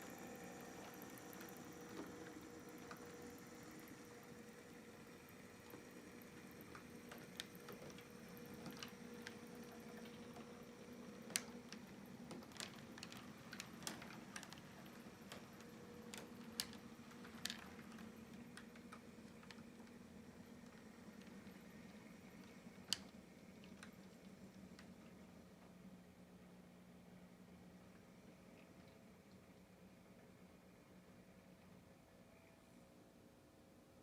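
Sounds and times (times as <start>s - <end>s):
model train clicking on track: 0.0s - 25.8s
low steady hum: 0.0s - 34.0s.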